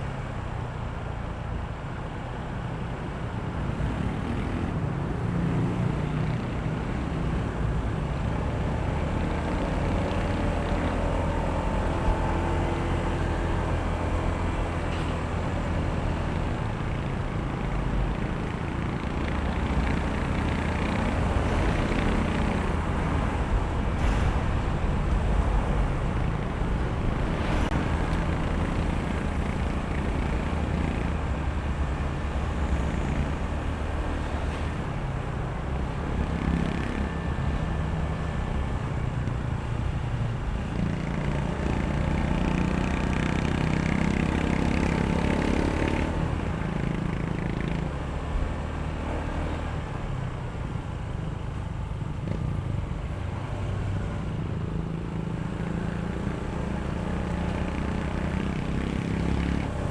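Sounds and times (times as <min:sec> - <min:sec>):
road and traffic noise: 0:00.0 - 0:59.9
scooter engine running: 0:08.6 - 0:23.2, 0:26.2 - 0:34.9.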